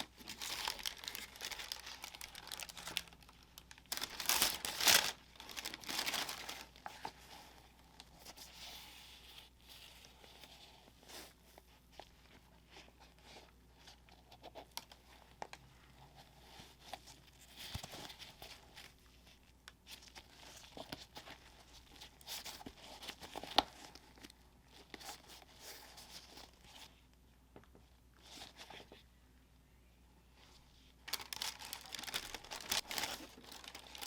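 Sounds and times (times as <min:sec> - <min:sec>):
paper crinkling: 0:00.0 - 0:15.6, 0:31.0 - 0:34.0.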